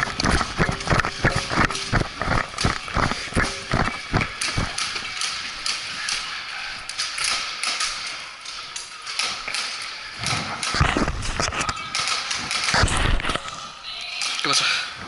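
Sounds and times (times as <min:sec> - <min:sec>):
footsteps on hard floor: 0:00.0 - 0:05.1
gear clicking: 0:00.0 - 0:14.6.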